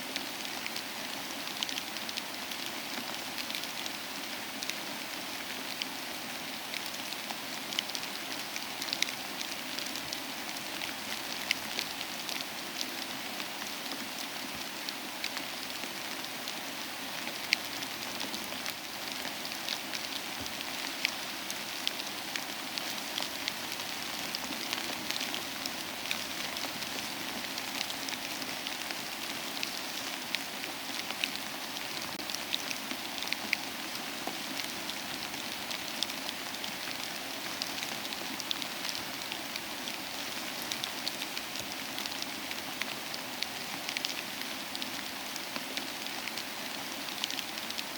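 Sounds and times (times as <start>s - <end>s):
soft rain falling: 0.0s - 47.9s.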